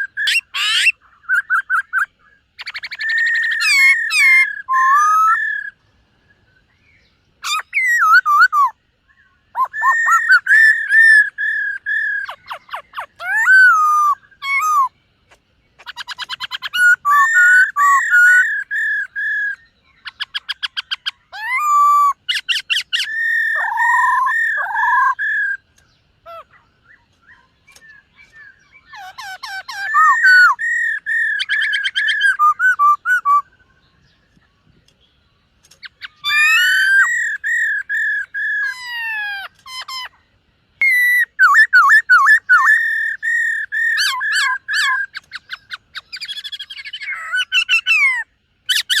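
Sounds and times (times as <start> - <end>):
laughingthrush singing: 9.5 - 33.7, 35.7 - 49.0.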